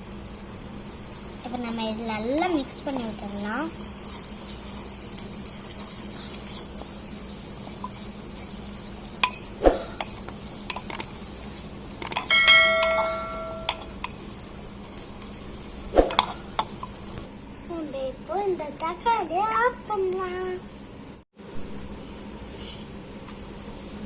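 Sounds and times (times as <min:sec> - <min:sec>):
light sizzle: 0:00.0 - 0:24.0
spoon clinking in metal pot: 0:09.2 - 0:10.1, 0:12.0 - 0:14.2, 0:16.1 - 0:16.7
spoon strike ringing on pot: 0:12.2 - 0:13.9.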